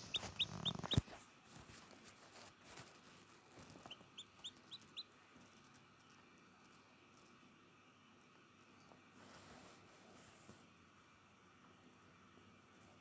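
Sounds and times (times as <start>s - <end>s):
chicken peeping: 0.0s - 1.0s, 3.6s - 6.8s
rustling: 0.0s - 7.4s.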